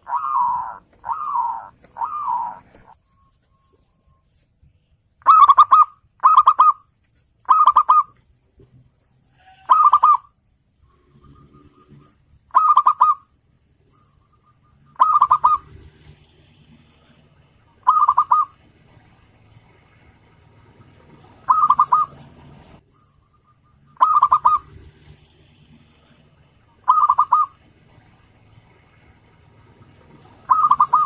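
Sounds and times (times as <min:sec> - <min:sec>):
dove trilled cooing: 0:00.0 - 0:03.0, 0:05.2 - 0:06.8, 0:07.5 - 0:08.1, 0:09.6 - 0:10.3, 0:11.0 - 0:13.2, 0:14.0 - 0:15.8, 0:17.8 - 0:18.6, 0:21.1 - 0:24.8, 0:26.8 - 0:27.6, 0:30.1 - 0:31.0.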